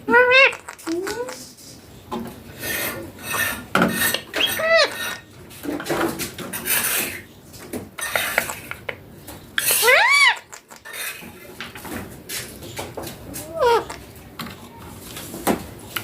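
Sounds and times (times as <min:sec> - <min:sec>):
parakeet squawk: 0:00.1 - 0:01.3, 0:04.3 - 0:05.2, 0:09.6 - 0:10.9, 0:13.4 - 0:14.0
parakeet chattering: 0:00.1 - 0:01.5, 0:03.5 - 0:05.3, 0:08.0 - 0:08.9, 0:09.6 - 0:11.2, 0:13.4 - 0:14.1.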